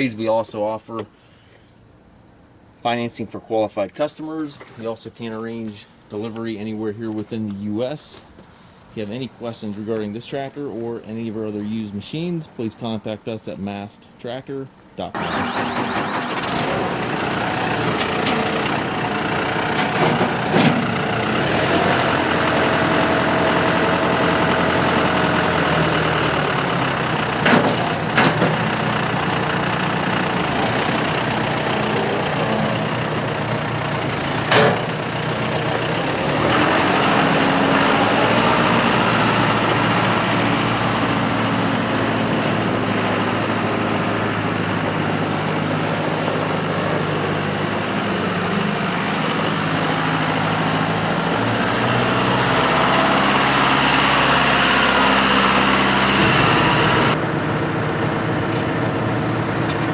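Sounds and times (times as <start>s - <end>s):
tractor diesel engine running: 15.2s - 59.9s
sharp clunks: 34.5s - 34.9s.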